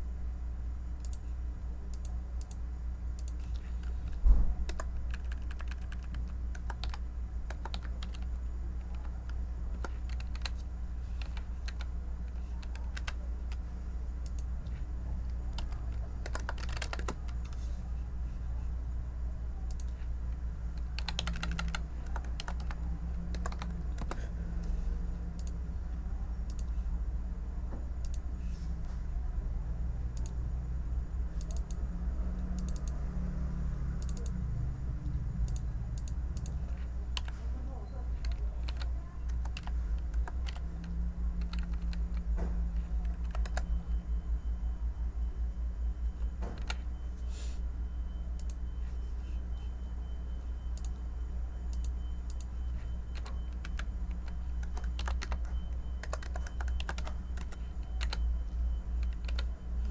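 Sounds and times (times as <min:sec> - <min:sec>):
steady low hum: 0:00.0 - 0:59.9
keyboard typing: 0:01.0 - 0:01.3, 0:03.2 - 0:18.4, 0:19.5 - 0:26.8, 0:28.0 - 0:28.3, 0:31.3 - 0:33.1, 0:33.9 - 0:34.4, 0:35.4 - 0:44.4, 0:46.0 - 0:46.9, 0:48.3 - 0:49.0, 0:50.7 - 0:51.0, 0:51.7 - 0:59.9.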